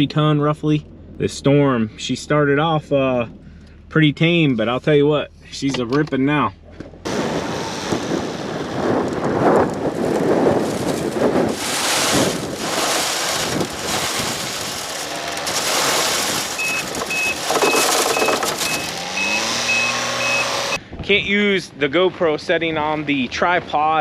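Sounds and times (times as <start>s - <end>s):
strong gusting wind on microphone: 7.0s - 19.6s
vehicle backup alarm beeping: 16.5s - 20.8s.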